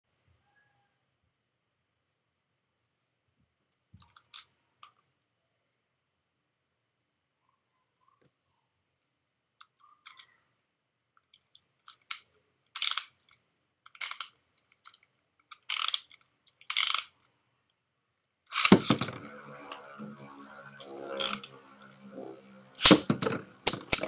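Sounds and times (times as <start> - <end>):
ratcheting zips: 14.0 - 17.2, 18.5 - 20.0, 20.6 - 24.0
spinning tops whirring and rattling: 16.7 - 17.2, 18.5 - 24.0.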